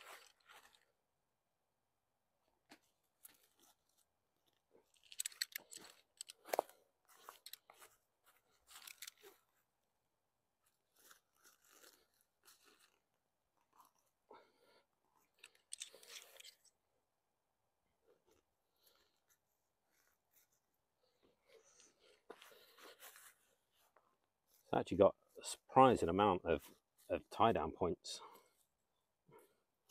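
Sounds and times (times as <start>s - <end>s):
tent fabric rustling: 10.6s - 14.2s, 18.2s - 24.7s.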